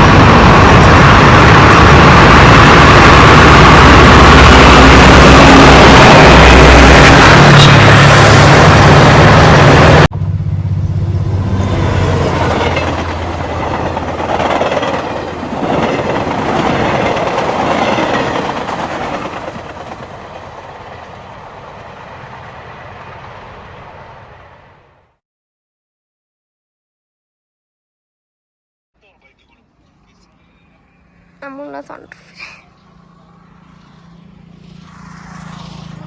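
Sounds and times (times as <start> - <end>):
jet engine roar: 0.0 - 24.9, 32.7 - 36.0.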